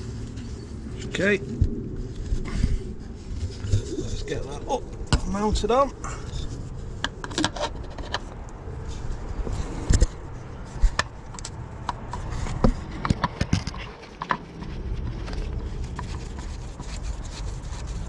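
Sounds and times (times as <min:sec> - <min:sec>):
oil filter clicks and scrapes: 0:06.2 - 0:18.0.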